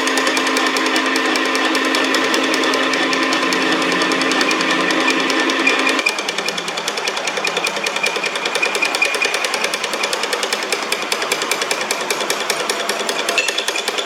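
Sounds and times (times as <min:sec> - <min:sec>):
metal lathe ticking: 0:00.0 - 0:14.0.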